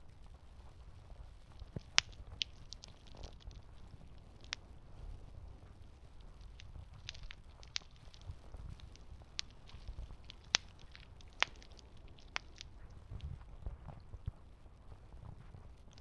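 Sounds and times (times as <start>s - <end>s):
wood fire crackling and popping: 1.4s - 4.8s, 5.6s - 13.4s, 15.8s - 16.0s.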